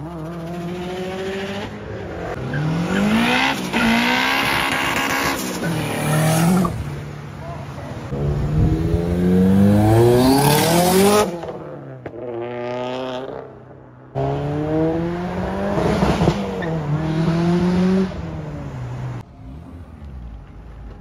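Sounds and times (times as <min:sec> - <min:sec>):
car engines accelerating hard: 0:00.0 - 0:13.4, 0:14.1 - 0:21.0
engine revving: 0:08.1 - 0:13.4, 0:14.2 - 0:18.6.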